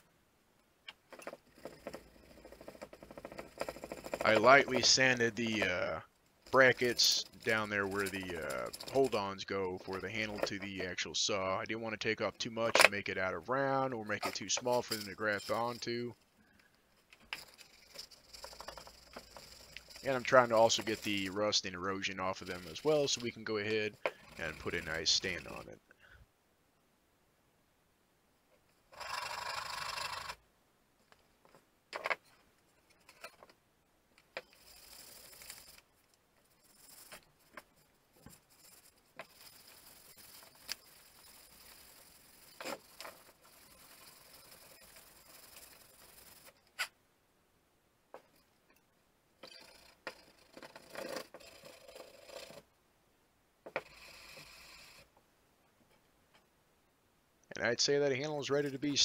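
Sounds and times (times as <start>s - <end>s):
sandpaper rubbing on wood: 18.4s - 25.6s, 36.5s - 37.2s, 38.3s - 46.5s.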